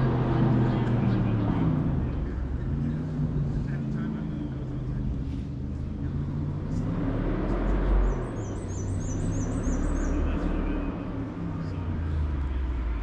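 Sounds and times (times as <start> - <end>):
distant race car engine: 0.0 - 13.0
small bird singing: 8.0 - 10.6.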